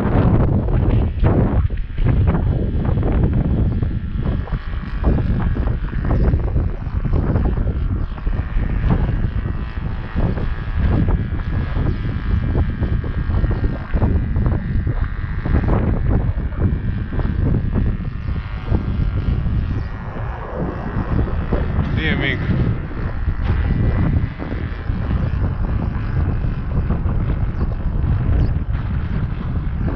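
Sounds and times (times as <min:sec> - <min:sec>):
model plane engine running: 0:00.0 - 0:29.9
wind buffeting microphone: 0:00.0 - 0:29.9.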